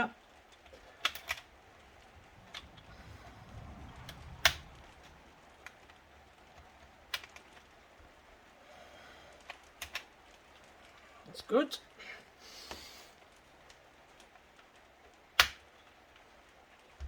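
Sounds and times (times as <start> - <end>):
plastic laptop casing clicks: 15.4 - 15.8.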